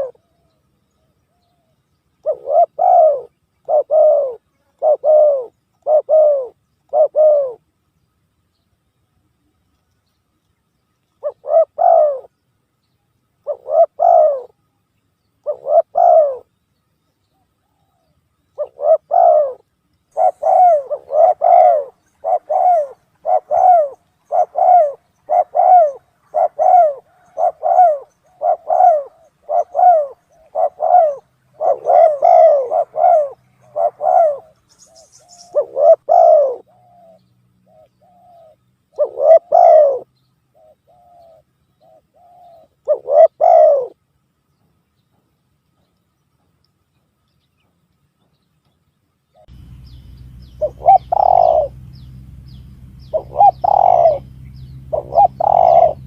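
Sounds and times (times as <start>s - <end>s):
dove cooing: 0.0s - 7.6s, 11.2s - 12.3s, 13.4s - 14.6s, 15.4s - 16.5s, 17.6s - 44.0s, 49.4s - 56.0s.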